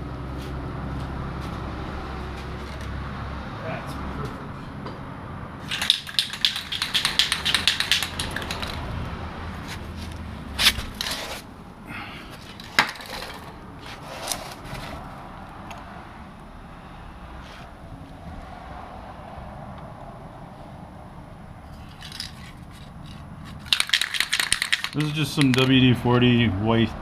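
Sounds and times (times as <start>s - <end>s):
aerosol can mixing ball rattling: 5.6s - 8.8s, 22.0s - 25.7s
sharp handling clicks: 5.7s - 8.8s, 22.0s - 25.8s.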